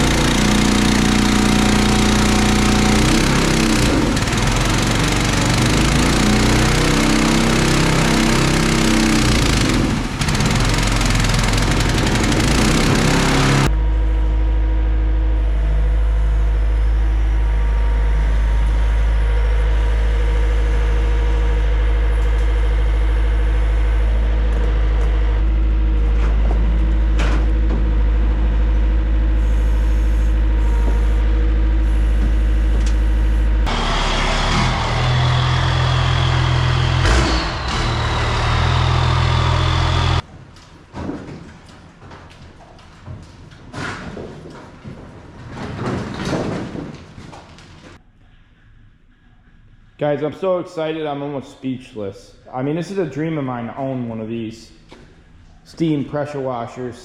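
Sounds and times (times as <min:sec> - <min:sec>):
pressure washer engine running: 0:00.0 - 0:13.7, 0:33.7 - 0:40.2.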